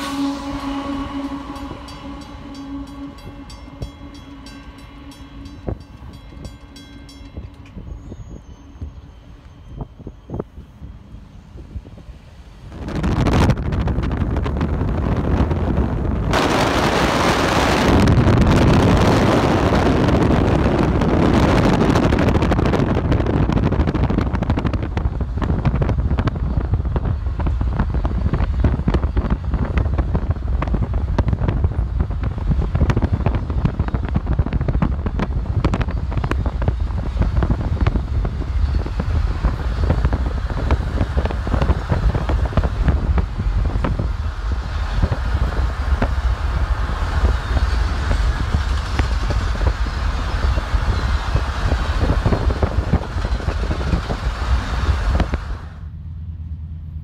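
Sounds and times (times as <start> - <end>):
diesel locomotives passing: 0.0 - 57.0
freight train rumbling past: 0.0 - 57.0
train wheels clicking and knocking: 47.0 - 55.5.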